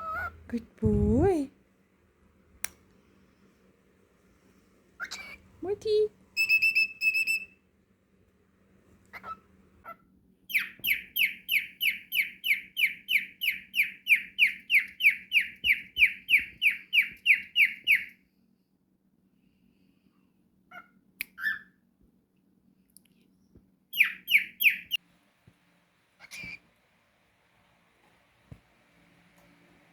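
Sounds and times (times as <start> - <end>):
cockatiel chirping: 0.0 - 0.4, 5.0 - 5.4, 6.4 - 7.6, 9.1 - 18.2, 23.9 - 25.0, 26.2 - 26.6.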